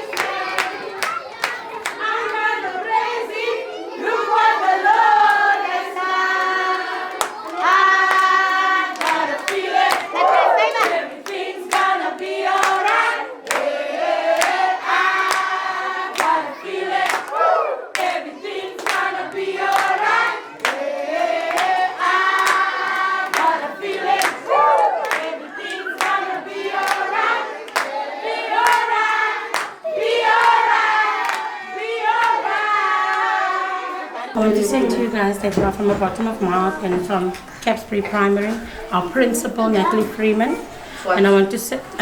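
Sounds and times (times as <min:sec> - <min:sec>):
hands clapping rhythmically: 0:00.0 - 0:03.5, 0:04.6 - 0:33.9
children singing in unison: 0:00.0 - 0:42.0.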